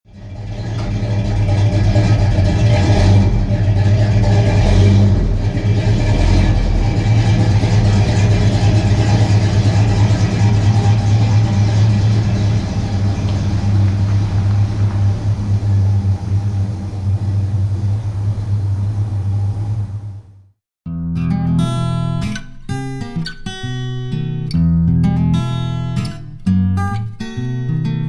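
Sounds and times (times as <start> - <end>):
vehicle engine idling: 0.1 - 20.6
light engine revs: 0.2 - 20.3.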